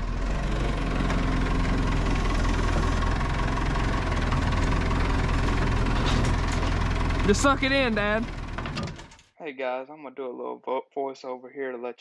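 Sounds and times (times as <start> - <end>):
engine idling: 0.0 - 9.1.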